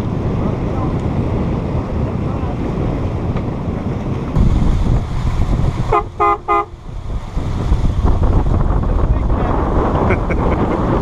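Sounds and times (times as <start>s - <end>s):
steady low rumble: 0.0s - 11.0s
wind noise on microphone: 0.0s - 11.0s
horn beeps: 5.9s - 6.7s.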